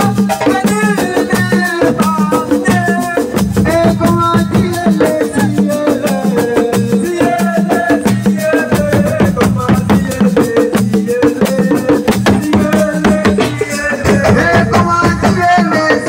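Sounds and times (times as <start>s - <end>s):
drums: 0.0s - 16.0s
pitched melody: 1.6s - 7.2s, 11.2s - 16.0s.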